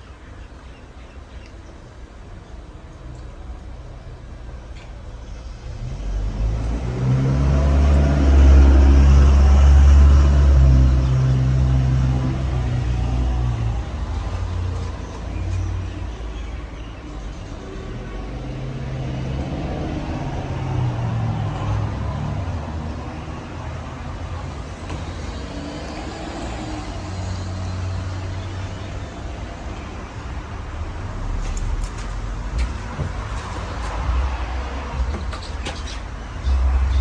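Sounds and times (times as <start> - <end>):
vehicle engine driving past: 5.5 - 13.5.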